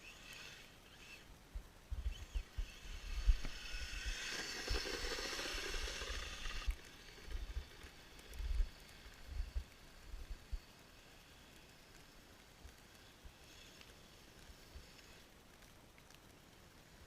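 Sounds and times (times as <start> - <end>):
toy snowcat whirring through snow: 0.0 - 1.3, 2.0 - 9.7.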